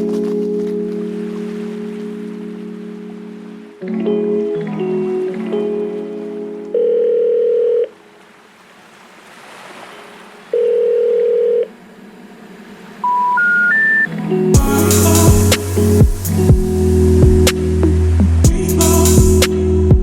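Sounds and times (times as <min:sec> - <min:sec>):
telephone line beeps: 0:06.7 - 0:08.0, 0:10.6 - 0:11.7, 0:13.0 - 0:14.1.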